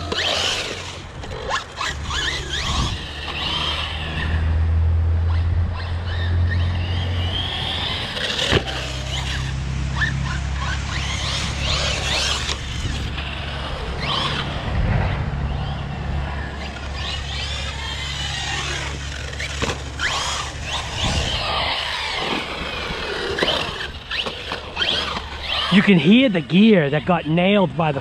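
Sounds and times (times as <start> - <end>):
rc car motor whine: 0.0 - 28.0.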